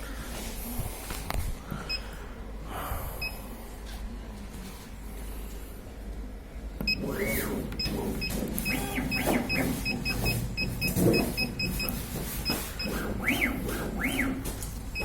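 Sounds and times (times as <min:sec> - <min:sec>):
low electrical hum: 0:00.0 - 0:15.0
short electronic beeps: 0:07.8 - 0:13.0.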